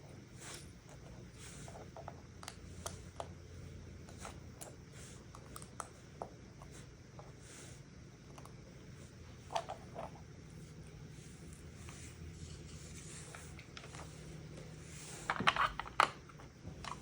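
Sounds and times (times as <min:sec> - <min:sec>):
soft rustling: 0:09.0 - 0:15.6.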